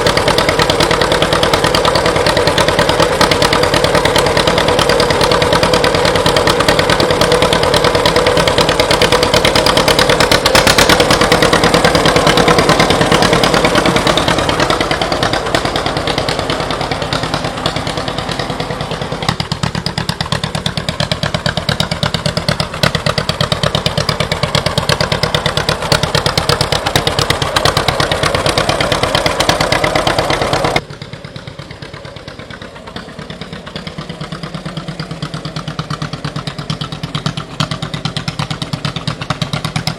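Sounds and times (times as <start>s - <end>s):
tractor engine popping: 0.0s - 39.9s.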